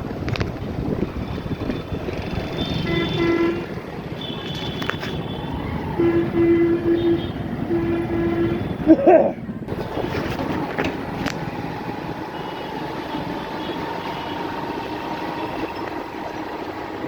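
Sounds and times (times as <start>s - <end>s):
traffic and road noise: 0.0s - 17.0s
vehicle horns tooting: 1.3s - 9.4s, 12.2s - 15.8s.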